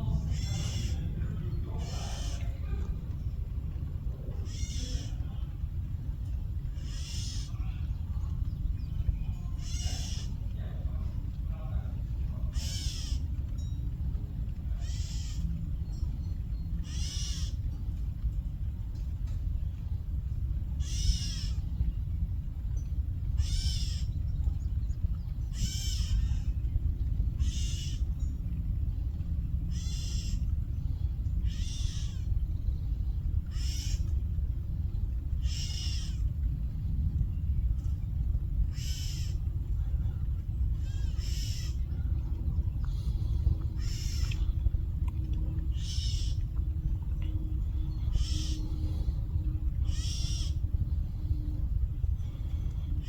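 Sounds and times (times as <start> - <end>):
birds squawking in alarm: 0.0 - 5.5, 6.6 - 8.4, 9.2 - 13.5, 14.3 - 18.1, 20.5 - 28.8, 29.5 - 37.1, 38.5 - 53.0
low rumble: 0.0 - 53.0
bird squawking harshly: 0.3 - 1.0, 1.8 - 2.4, 4.5 - 5.1, 6.8 - 7.5, 9.6 - 10.4, 12.6 - 13.2, 14.8 - 15.4, 16.8 - 17.6, 20.8 - 21.5, 25.6 - 26.2, 31.5 - 32.2, 33.5 - 34.0, 35.4 - 36.2, 38.7 - 39.4, 40.8 - 41.8, 43.8 - 44.3, 48.1 - 48.7, 49.8 - 50.6.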